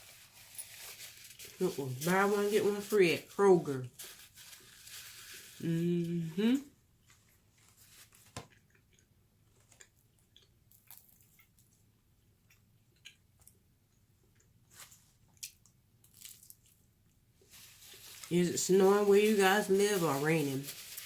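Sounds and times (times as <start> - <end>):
faint chewing: 7.0 - 17.2.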